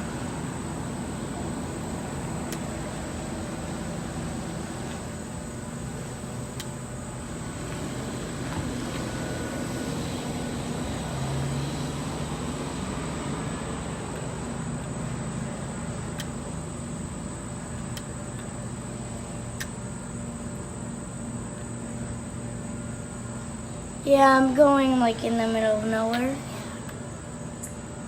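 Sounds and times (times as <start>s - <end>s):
drone propellers humming: 0.0s - 28.0s
faint clicks: 19.6s - 19.8s.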